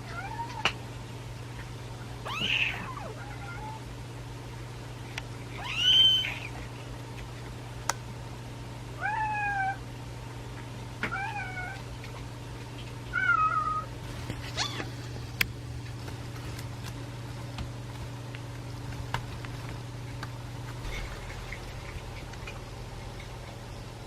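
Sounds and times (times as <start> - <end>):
kittens mewing: 2.2 - 3.8, 5.5 - 6.6, 13.1 - 15.0
low hum: 11.7 - 24.0.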